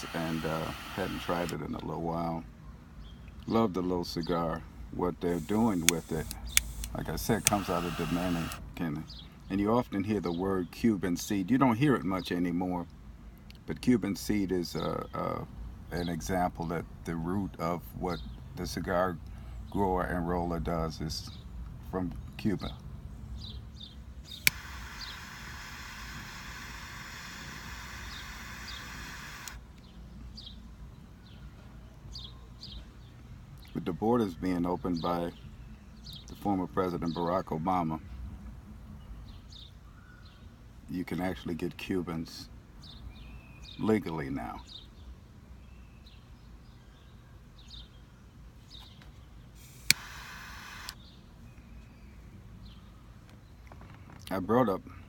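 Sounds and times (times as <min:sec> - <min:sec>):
steady hiss: 0:00.0 - 0:01.6, 0:05.1 - 0:08.7, 0:24.3 - 0:29.6
sharp click: 0:05.3 - 0:08.7, 0:24.3 - 0:29.6, 0:49.7 - 0:51.0
faint bird chirps: 0:39.0 - 0:40.6.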